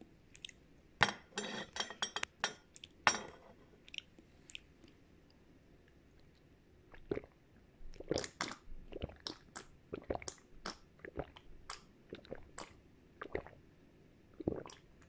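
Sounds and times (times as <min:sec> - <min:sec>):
crunches and mouth clicks: 0:08.0 - 0:10.8.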